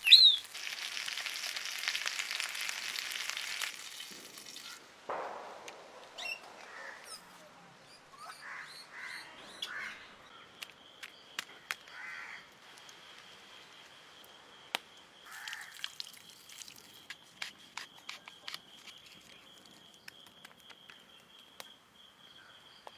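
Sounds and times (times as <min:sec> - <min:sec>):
short bird calls: 0:00.0 - 0:00.5.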